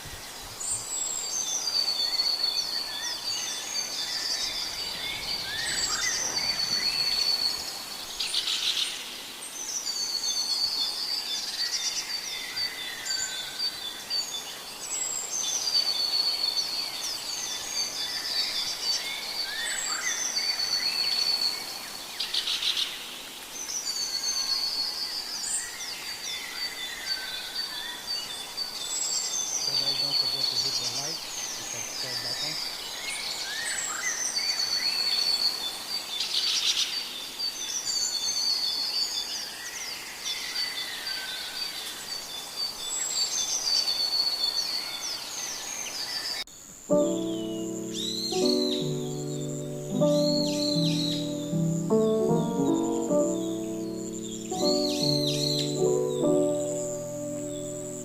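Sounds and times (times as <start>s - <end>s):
lower bird calls: 3.5s - 8.7s, 46.0s - 58.0s
bird chattering song: 29.4s - 32.7s, 46.9s - 58.0s.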